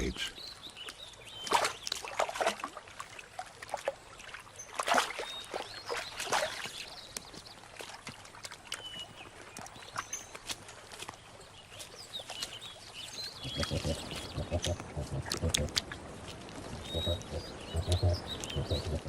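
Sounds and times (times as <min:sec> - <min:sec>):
water trickling: 0:00.0 - 0:19.0
otters splashing in water: 0:01.4 - 0:09.7, 0:13.4 - 0:19.0.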